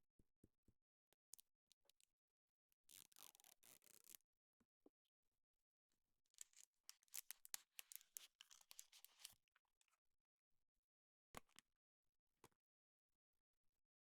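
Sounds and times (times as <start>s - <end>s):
crinkly rustling and clicks: 6.4s - 9.4s.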